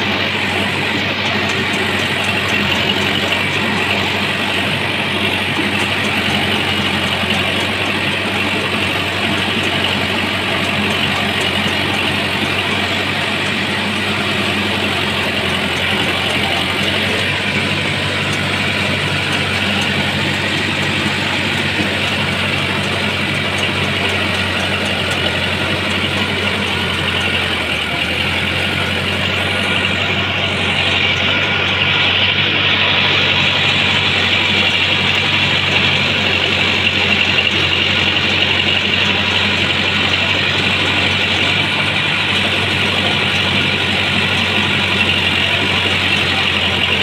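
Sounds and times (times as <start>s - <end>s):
truck engine idling: 0.0s - 47.0s.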